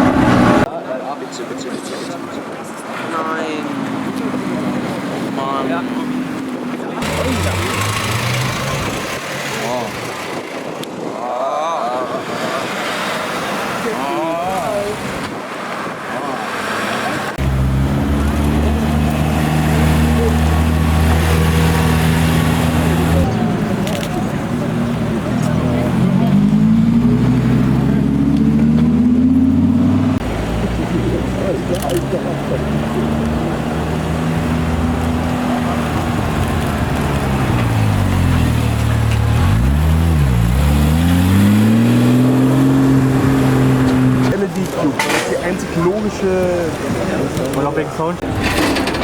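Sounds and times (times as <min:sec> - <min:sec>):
car engine running: 0:07.0 - 0:10.6, 0:17.4 - 0:44.5.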